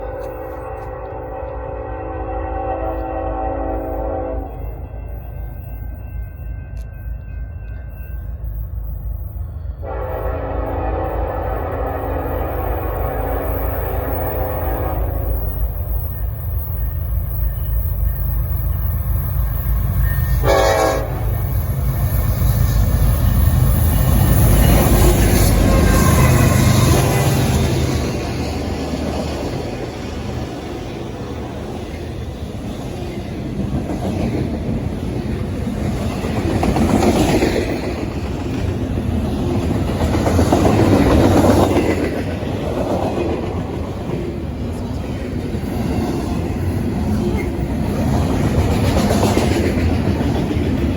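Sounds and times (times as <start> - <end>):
train horn blast: 0.0 - 4.7, 9.8 - 15.4, 20.0 - 21.4, 25.1 - 27.6
train rumble: 0.0 - 50.9.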